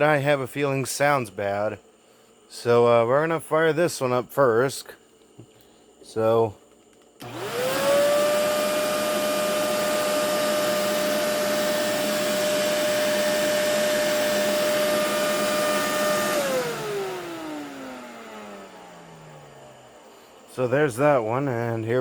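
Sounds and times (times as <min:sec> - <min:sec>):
vacuum motor spinning down: 0:07.2 - 0:21.0
vacuum cleaner running: 0:07.2 - 0:22.0.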